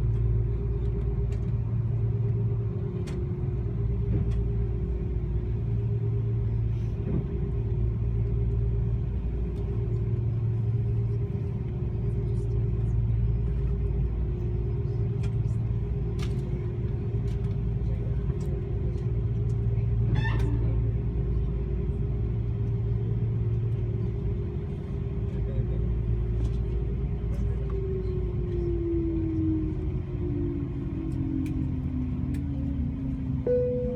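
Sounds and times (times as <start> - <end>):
airplane cabin rumble: 0.0 - 33.9
whine falling in pitch: 33.5 - 33.9.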